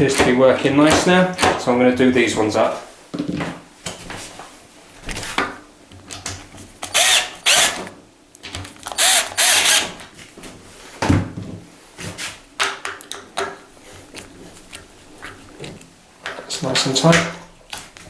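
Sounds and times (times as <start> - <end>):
cordless drill whirring: 6.8 - 7.9, 8.9 - 10.0.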